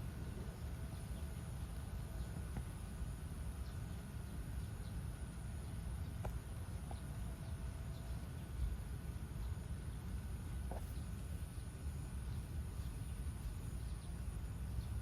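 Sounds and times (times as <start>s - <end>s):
thin high steady whine: 0.0s - 15.0s.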